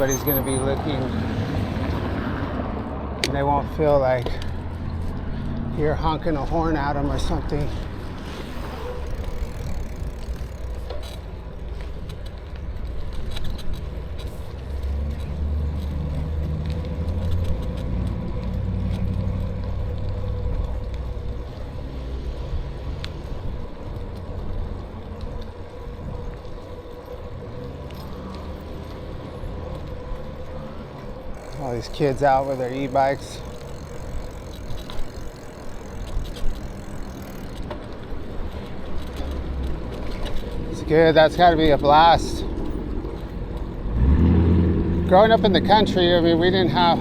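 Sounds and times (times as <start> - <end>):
tyre noise: 3.2 - 47.0.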